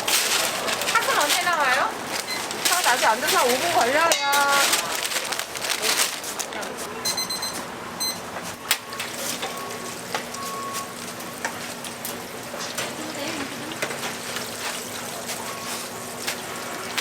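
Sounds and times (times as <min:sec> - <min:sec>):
doughnuts sizzling in oil: 0:09.0 - 0:17.0.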